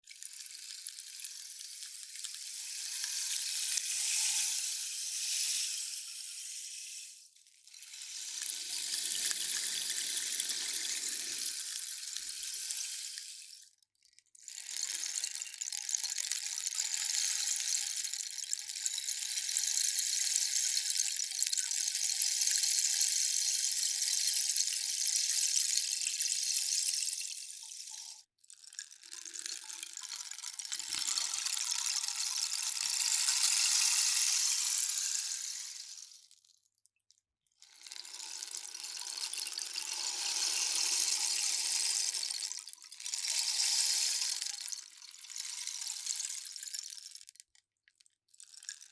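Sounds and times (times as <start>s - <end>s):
rainstick trickling: 0.2s - 7.0s, 24.4s - 36.5s, 37.7s - 47.6s.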